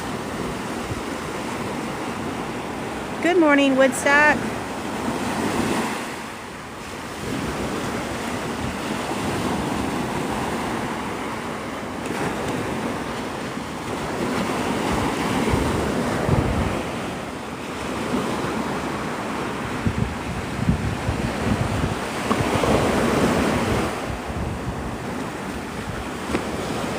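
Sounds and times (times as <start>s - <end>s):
surf washing onto beach: 0.0s - 26.9s
wind buffeting microphone: 6.9s - 17.3s, 17.9s - 26.9s.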